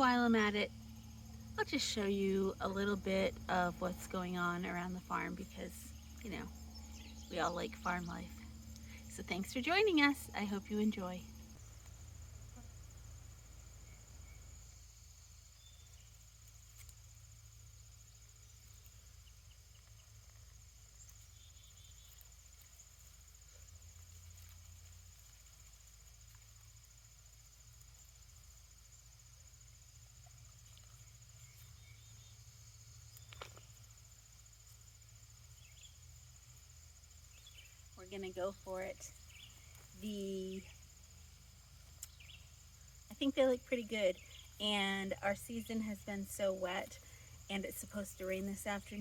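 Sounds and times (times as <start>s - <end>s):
soft chirps: 0.0s - 17.3s, 37.2s - 49.0s
crickets chirping: 0.0s - 49.0s.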